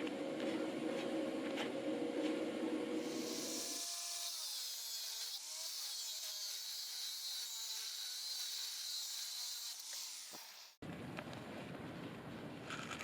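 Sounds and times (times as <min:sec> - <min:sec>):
electric chainsaw cutting wood: 0:02.9 - 0:10.8.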